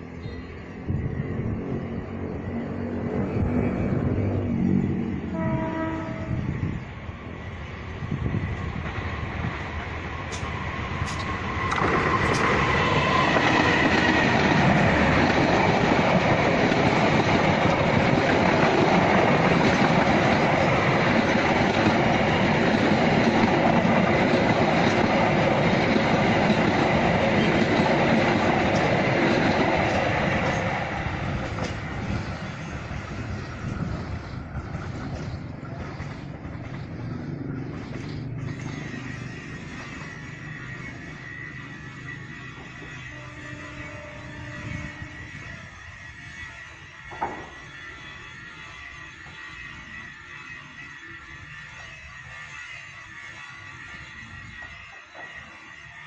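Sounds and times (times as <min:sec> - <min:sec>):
train rumbling past: 0:00.0 - 0:56.0
wheels clacking over rail joints: 0:08.8 - 0:39.0.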